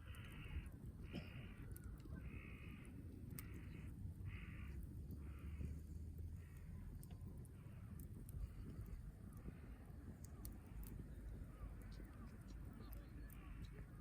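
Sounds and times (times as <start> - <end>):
crow cawing: 0.0 - 5.7
campfire pops: 0.0 - 14.0.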